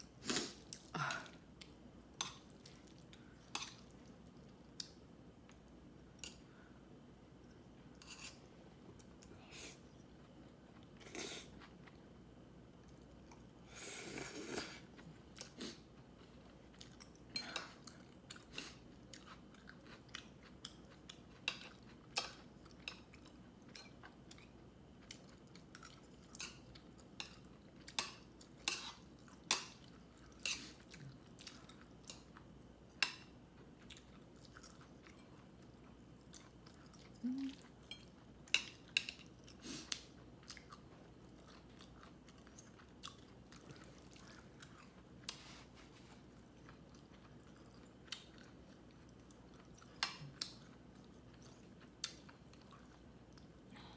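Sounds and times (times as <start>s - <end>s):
person chewing crunchy food: 14.0s - 32.5s, 33.5s - 53.7s.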